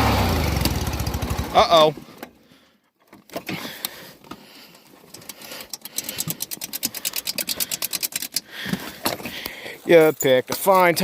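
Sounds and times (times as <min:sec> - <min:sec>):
mower engine cutting out: 0:00.0 - 0:01.9
rapid clicks: 0:05.1 - 0:08.5.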